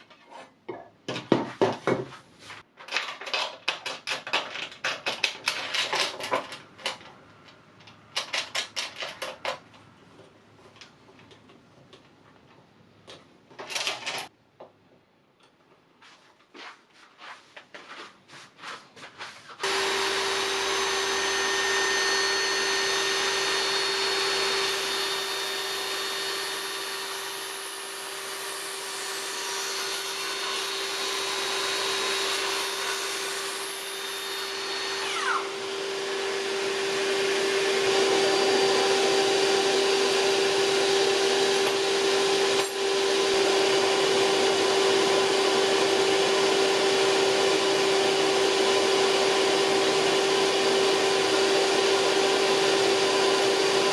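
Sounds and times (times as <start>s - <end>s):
electric power tool motor humming: 19.6s - 53.9s.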